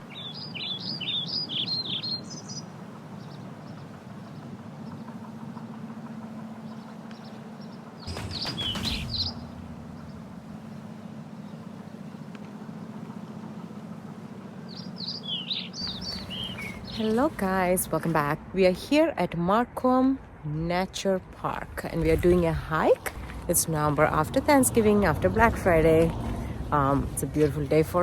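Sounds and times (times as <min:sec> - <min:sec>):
small birds chirping: 0:00.0 - 0:05.7, 0:06.6 - 0:13.0, 0:14.2 - 0:18.0
steady low hum: 0:00.0 - 0:28.0.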